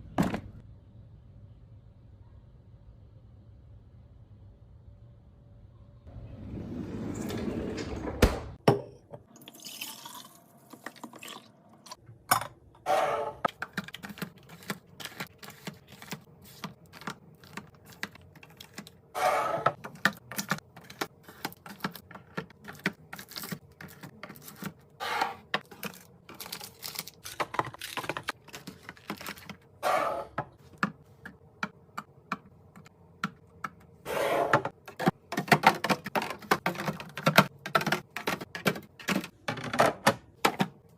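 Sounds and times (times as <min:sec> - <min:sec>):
containers clicking and tapping: 0:13.5 - 0:19.0, 0:19.7 - 0:24.8, 0:25.4 - 0:29.6, 0:34.7 - 0:40.8.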